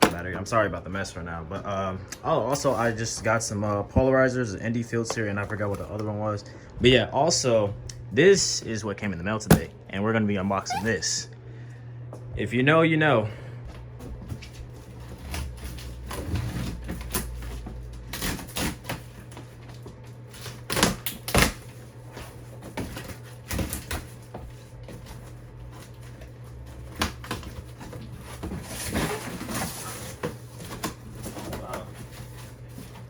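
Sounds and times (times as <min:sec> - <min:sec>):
rustling packing: 0:13.9 - 0:33.0.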